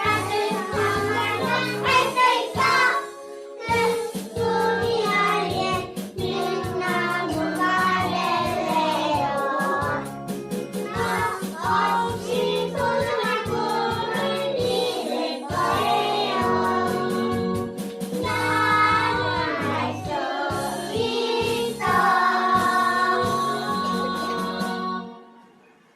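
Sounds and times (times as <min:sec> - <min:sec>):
young children singing: 0:00.0 - 0:10.1, 0:10.8 - 0:17.5, 0:18.2 - 0:25.1
recorded backing track: 0:00.0 - 0:25.6.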